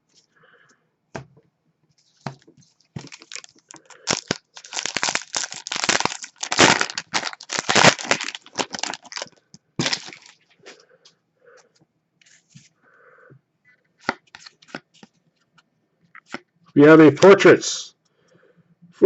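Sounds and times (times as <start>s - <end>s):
foil wrapper crinkling: 3.0s - 10.5s.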